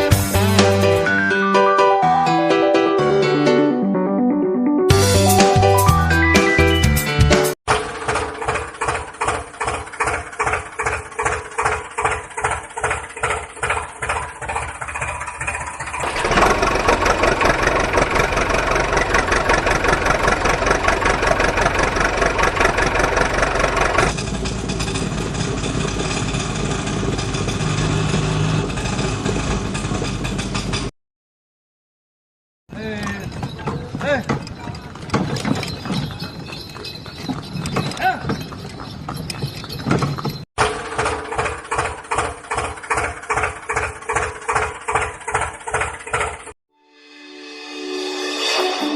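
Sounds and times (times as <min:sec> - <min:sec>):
vehicle engine running: 0:07.7 - 0:30.9, 0:40.6 - 0:46.6.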